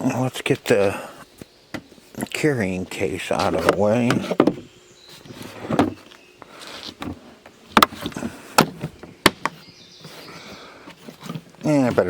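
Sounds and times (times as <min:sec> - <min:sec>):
rustling: 0:03.3 - 0:12.0
plastic case knocks and clunks: 0:03.4 - 0:04.7, 0:05.6 - 0:06.0.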